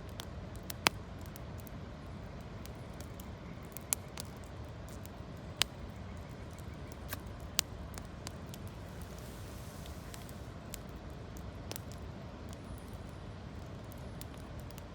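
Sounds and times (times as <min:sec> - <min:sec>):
campfire crackles and pops: 0:00.0 - 0:14.9
steady fire rush: 0:08.0 - 0:11.0.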